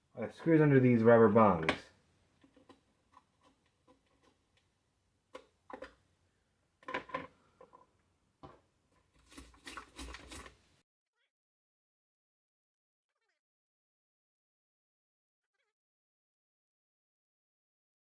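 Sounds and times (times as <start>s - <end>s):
plastic blender parts clattering: 5.4s - 6.0s, 6.8s - 10.7s.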